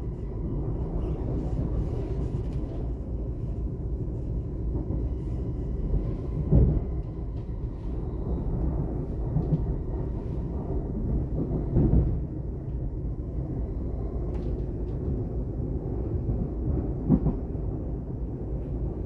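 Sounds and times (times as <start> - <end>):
train wheels rumbling on track: 0.0 - 19.0
train bumps: 4.8 - 12.8.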